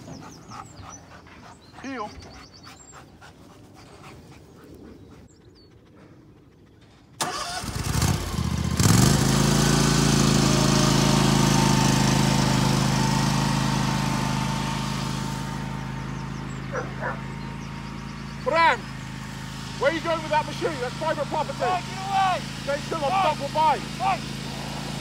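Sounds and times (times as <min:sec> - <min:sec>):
lawn mower engine starting and running: 0:07.2 - 0:25.0.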